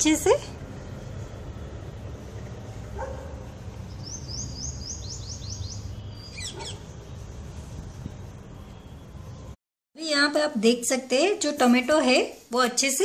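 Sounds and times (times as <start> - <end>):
small bird singing: 3.8 - 7.3.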